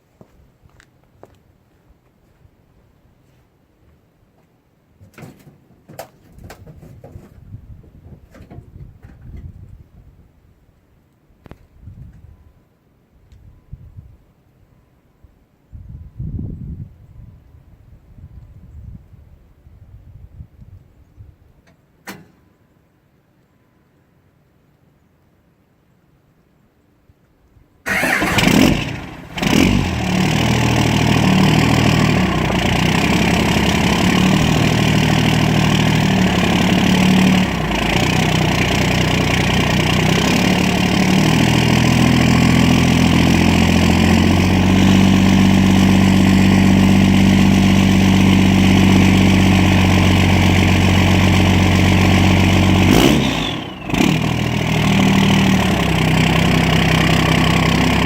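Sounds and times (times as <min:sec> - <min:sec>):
diesel engine starting and idling: 0:27.9 - 0:58.0.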